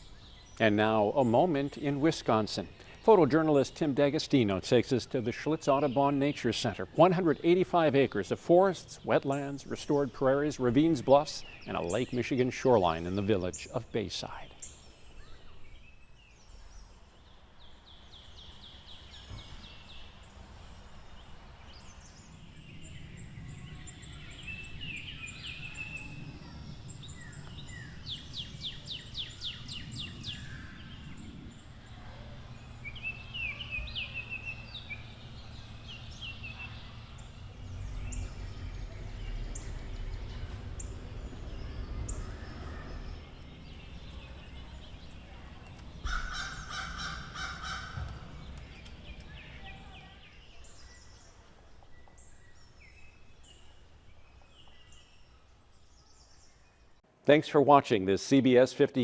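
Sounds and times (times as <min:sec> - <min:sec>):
wild birds singing and calling: 0:00.0 - 0:57.0
low rumble: 0:20.4 - 0:51.3.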